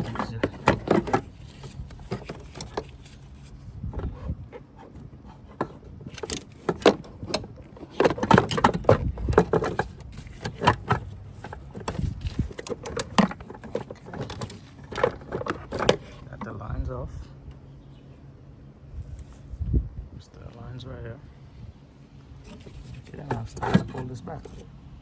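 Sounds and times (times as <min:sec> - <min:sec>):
tools and metal parts clinking: 0:00.0 - 0:03.6, 0:05.4 - 0:16.2, 0:22.4 - 0:24.6.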